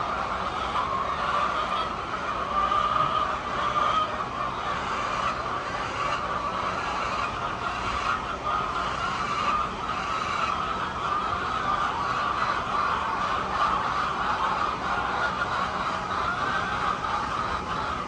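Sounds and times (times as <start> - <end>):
hens clucking: 0.0 - 18.0.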